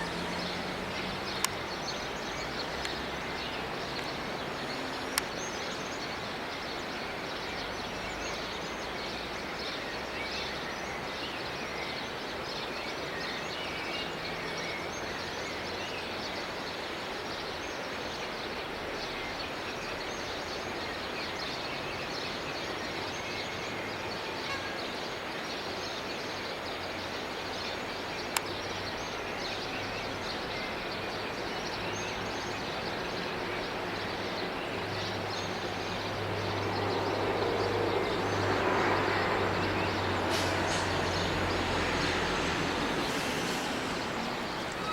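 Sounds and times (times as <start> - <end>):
background hiss: 26.4 - 44.9.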